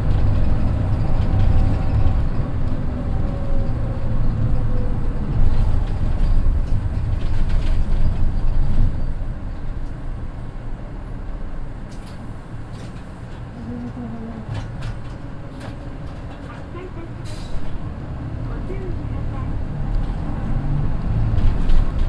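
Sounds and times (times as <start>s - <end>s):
diesel bus engine: 0.0s - 22.0s
light clicks and rattles: 11.9s - 17.9s.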